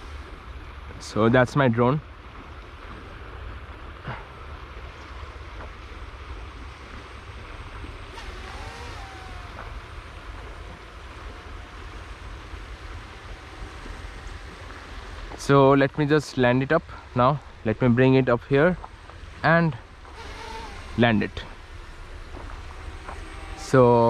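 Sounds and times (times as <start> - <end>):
river water rushing: 5.2 - 18.1.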